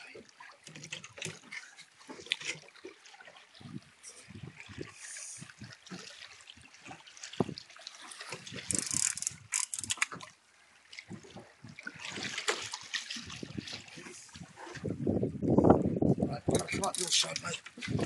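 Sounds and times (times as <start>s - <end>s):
water splashing against boat: 0.0s - 18.0s
fishing gear rattling: 8.3s - 10.2s, 16.5s - 18.0s.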